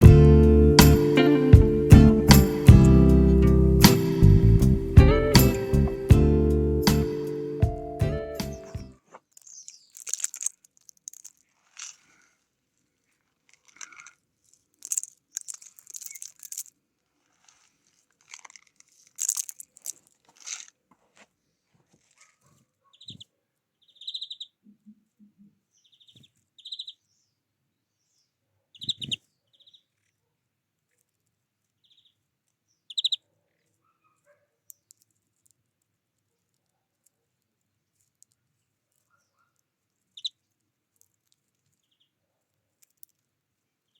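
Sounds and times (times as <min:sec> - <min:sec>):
small birds chirping: 0:06.8 - 0:10.4, 0:22.3 - 0:30.2, 0:31.8 - 0:35.1, 0:38.4 - 0:40.6, 0:41.7 - 0:42.2.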